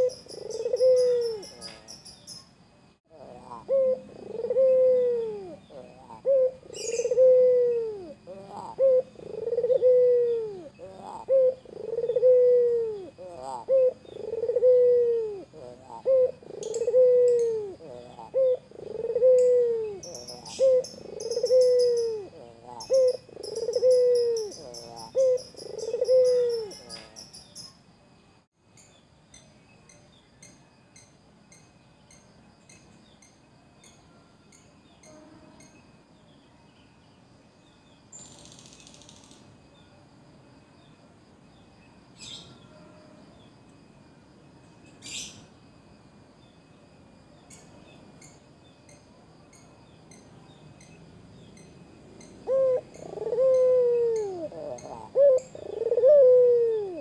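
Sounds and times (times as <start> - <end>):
dove cooing: 0.0 - 2.0, 3.1 - 27.3, 52.4 - 57.0
faint high chirping: 3.7 - 15.5, 16.6 - 57.0.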